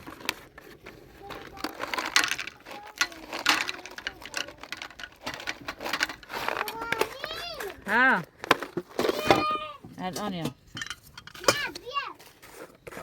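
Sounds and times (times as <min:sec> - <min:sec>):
objects clicking and clattering: 0:00.0 - 0:13.0
faint child's voice: 0:02.5 - 0:04.6, 0:06.6 - 0:07.8, 0:09.1 - 0:09.8, 0:11.4 - 0:12.3.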